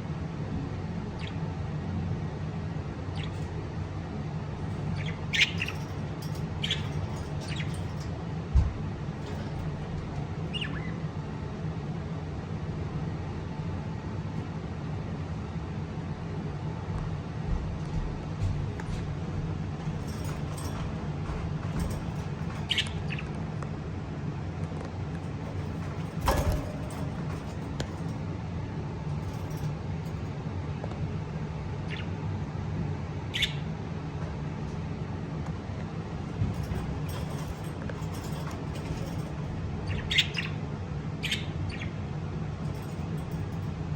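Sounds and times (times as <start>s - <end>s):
steady low hum: 0.0s - 43.9s
lovebirds chirping: 4.7s - 8.2s, 9.2s - 11.0s, 20.0s - 23.4s, 36.5s - 40.6s.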